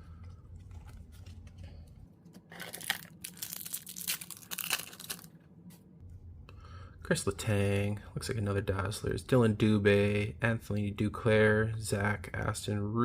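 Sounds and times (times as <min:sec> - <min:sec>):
card pack wrapper tearing and crinkling: 0:02.3 - 0:05.3.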